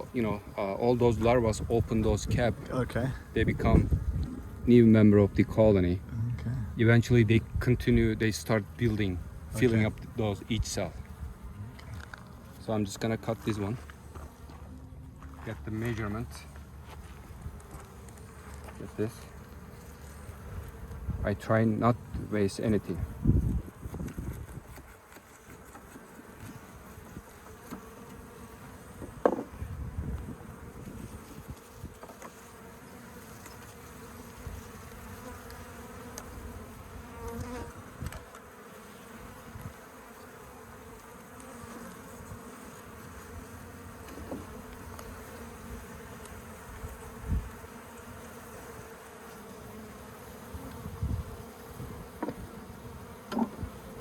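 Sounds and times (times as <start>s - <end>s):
bees buzzing: 8.4s - 54.0s.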